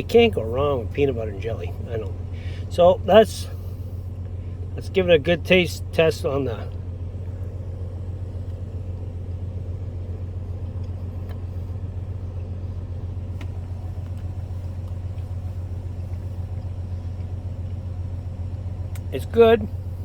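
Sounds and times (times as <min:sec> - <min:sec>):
truck engine idling: 0:00.0 - 0:20.0
faint light clicks: 0:13.3 - 0:15.4, 0:18.8 - 0:19.1.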